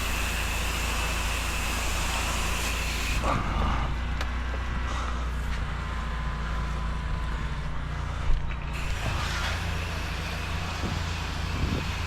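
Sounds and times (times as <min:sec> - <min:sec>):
pressure washer engine hum: 0:00.0 - 0:12.0
hissing rinse spray: 0:08.8 - 0:12.0.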